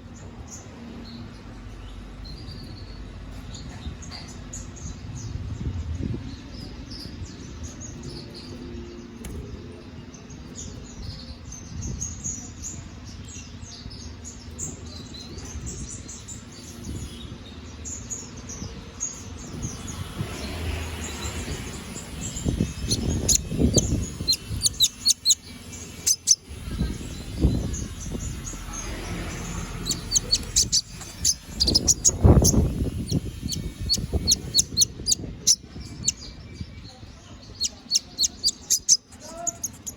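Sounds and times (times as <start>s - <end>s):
canary singing: 19.1s - 39.9s.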